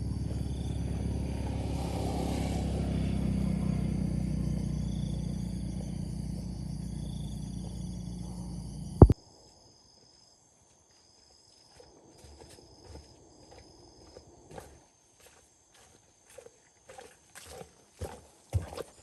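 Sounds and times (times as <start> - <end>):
motor running: 0.0 - 9.1.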